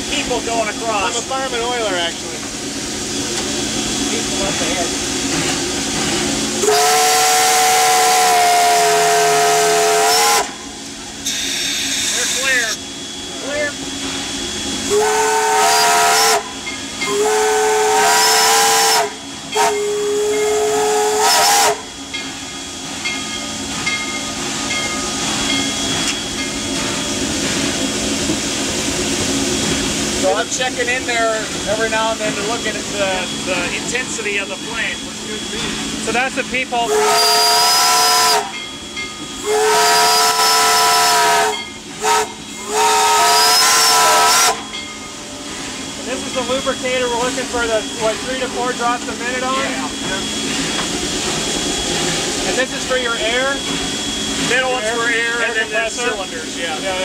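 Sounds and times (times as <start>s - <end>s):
steam hissing: 0.0s - 57.0s
steam locomotive whistle blasts: 6.6s - 13.8s, 14.6s - 22.0s, 36.8s - 44.8s.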